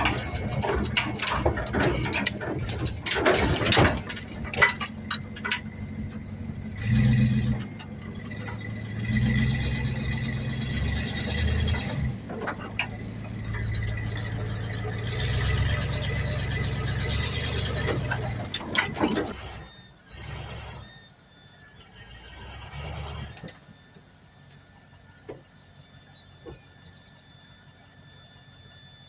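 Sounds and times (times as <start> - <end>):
metallic clanks and rattles: 0.0 - 19.6
engine running: 0.0 - 29.0.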